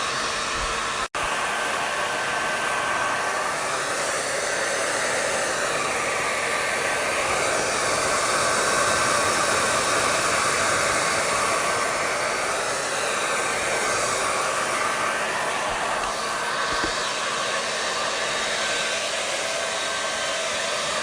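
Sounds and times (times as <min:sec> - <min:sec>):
hair dryer running: 0:00.0 - 0:21.0.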